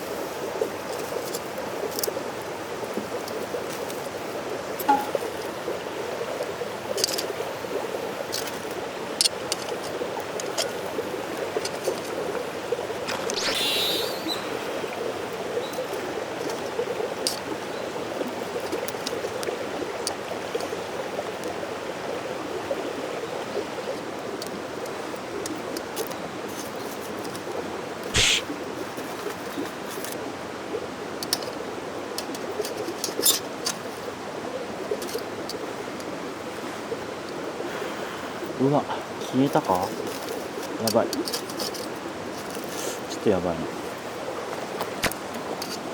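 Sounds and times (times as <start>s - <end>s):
campfire crackles: 0.0s - 45.9s
stream flowing: 0.0s - 45.9s
brief hiss: 13.1s - 14.9s, 28.2s - 28.5s.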